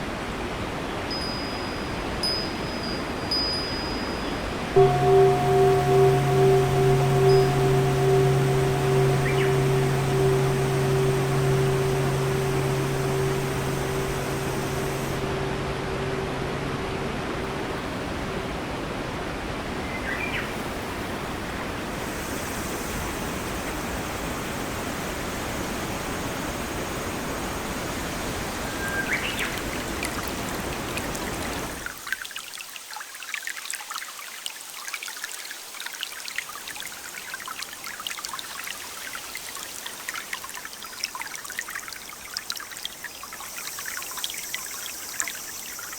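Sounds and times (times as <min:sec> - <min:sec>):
rushing rain and water: 0:00.0 - 0:45.9
dripping trickling rain: 0:01.0 - 0:23.4, 0:24.0 - 0:45.9
bird chirps: 0:04.8 - 0:17.5.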